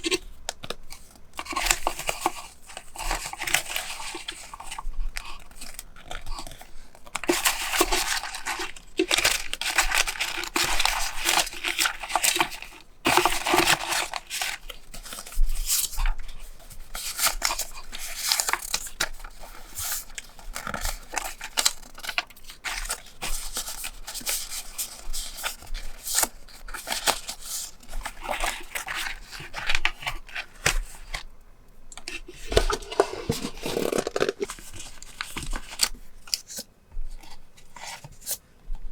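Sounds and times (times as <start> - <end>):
paper tearing and crinkling: 7.2 - 16.0, 32.1 - 36.6.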